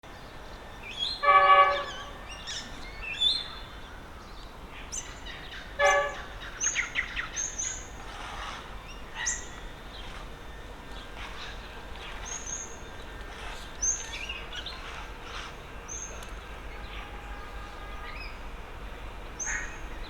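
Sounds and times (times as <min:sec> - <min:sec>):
birds chirping and trilling: 0:00.2 - 0:18.6, 0:19.4 - 0:20.0
harsh bird calls: 0:11.0 - 0:18.5, 0:19.4 - 0:20.0.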